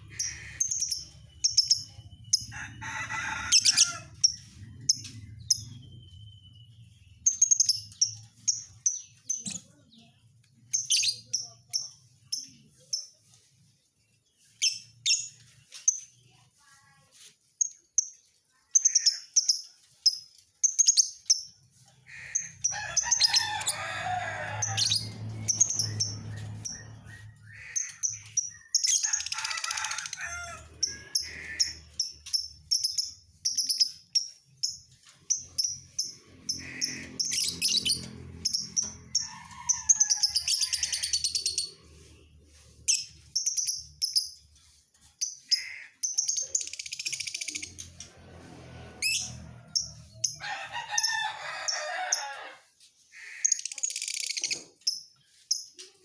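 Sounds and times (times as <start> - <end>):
harsh bird chattering: 0.0 - 2.5, 24.8 - 30.1, 30.9 - 34.1, 35.4 - 38.6.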